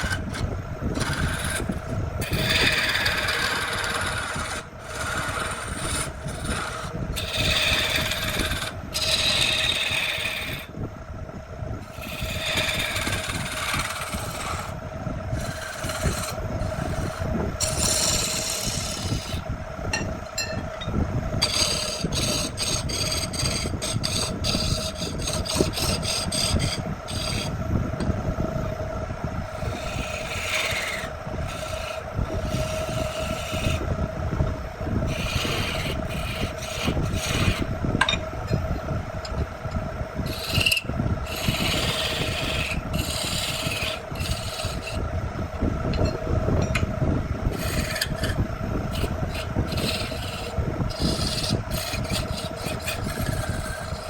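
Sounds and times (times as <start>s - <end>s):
tool rasping into wood: 0.0s - 10.7s, 12.0s - 14.8s, 15.4s - 19.4s, 21.4s - 27.5s, 29.5s - 33.8s, 35.1s - 38.6s, 40.3s - 45.0s, 47.5s - 54.0s
power tool motor humming: 47.6s - 54.0s.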